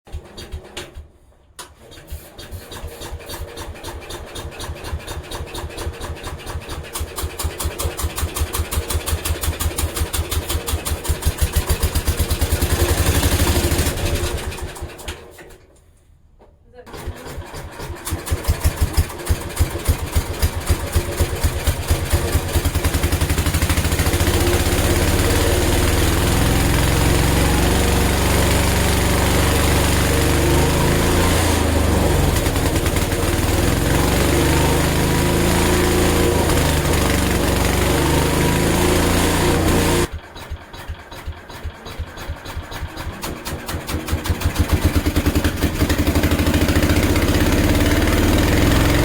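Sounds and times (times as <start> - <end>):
engine firing in uneven pulses: 17.4 - 49.0.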